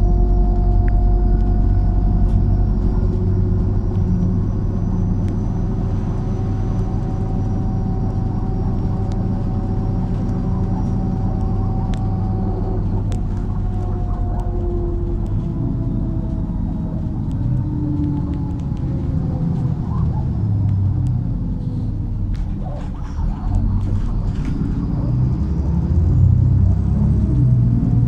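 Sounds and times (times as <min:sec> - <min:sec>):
bus engine droning with whine: 0:00.0 - 0:28.0.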